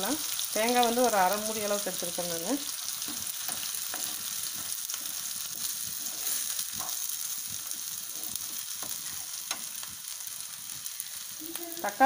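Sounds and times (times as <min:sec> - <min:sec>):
food sizzling in hot oil: 0:00.0 - 0:12.0
wooden spatula scraping pan: 0:03.0 - 0:07.0.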